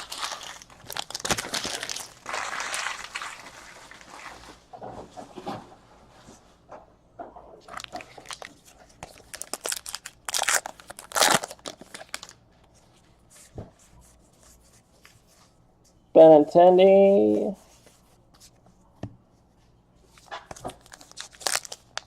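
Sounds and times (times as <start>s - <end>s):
card pack wrappers crinkling: 0.0s - 4.5s, 7.7s - 12.4s, 20.5s - 22.0s.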